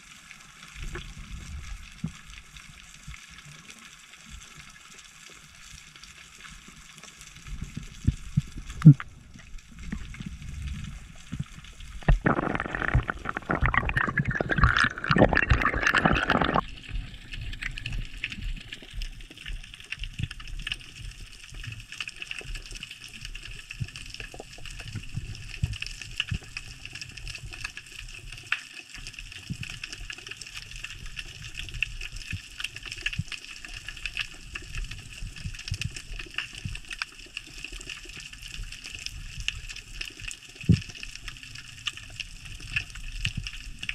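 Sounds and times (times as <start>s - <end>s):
underwater rush of bubbles: 7.4s - 21.3s.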